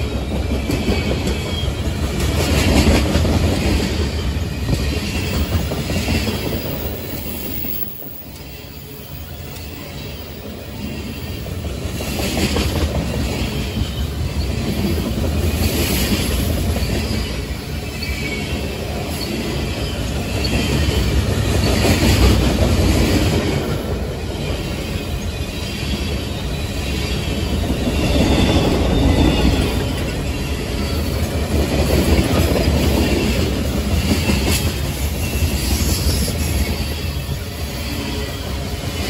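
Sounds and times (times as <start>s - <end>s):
freight train rolling past: 0.0s - 39.0s
faint high wheel squeal: 0.3s - 2.2s, 3.8s - 11.7s, 13.2s - 15.0s, 15.8s - 22.2s, 24.0s - 31.3s, 33.0s - 39.0s.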